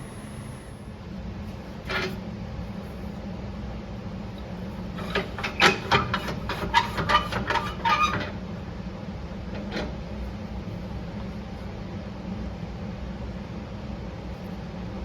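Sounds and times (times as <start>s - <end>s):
low machine hum: 0.0s - 6.5s.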